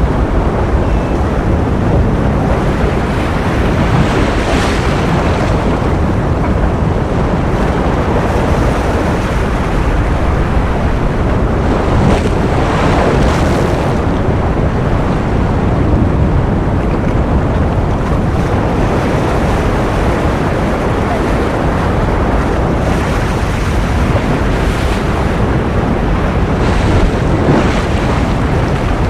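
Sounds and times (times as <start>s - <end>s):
ocean surf: 0.0s - 29.0s
waves breaking: 0.0s - 29.0s.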